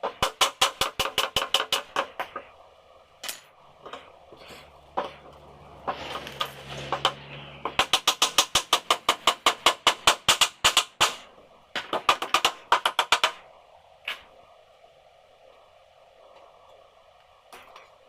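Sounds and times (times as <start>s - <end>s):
nails hammered into wood: 0.0s - 2.4s, 6.9s - 13.4s
machine hum: 2.2s - 8.4s.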